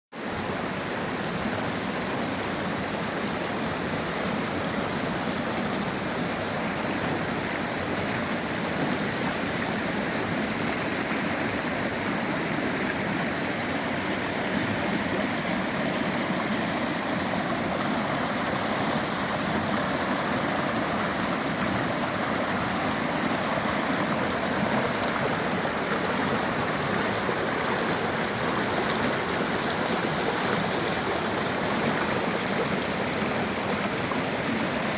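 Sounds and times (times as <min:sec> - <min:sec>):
river rushing over rocks: 0:00.2 - 0:34.9.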